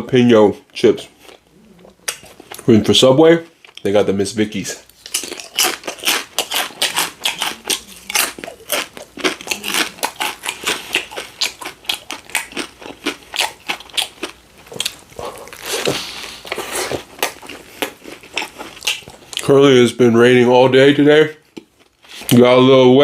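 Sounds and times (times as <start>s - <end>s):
potato chips being chewed: 4.8s - 19.5s, 21.5s - 22.4s.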